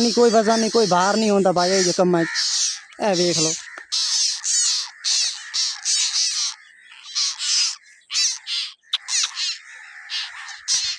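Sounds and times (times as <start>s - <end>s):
chicks giving rasping begging calls: 0.0s - 10.9s.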